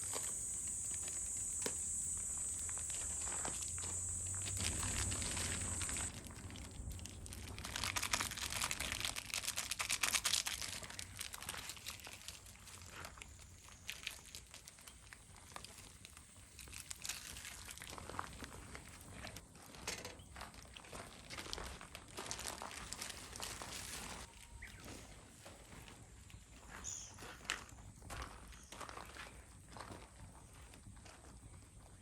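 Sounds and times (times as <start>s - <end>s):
high-pitched drone: 0.0s - 6.2s
crinkling and rustling handling: 0.0s - 30.2s.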